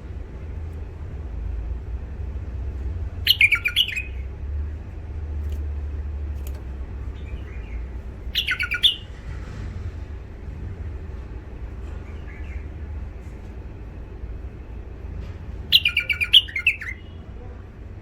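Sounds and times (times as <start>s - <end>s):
steady low rumble: 0.0s - 18.0s
bird chirping song phrases: 3.2s - 4.4s, 6.8s - 9.3s, 11.9s - 13.0s, 15.7s - 17.6s.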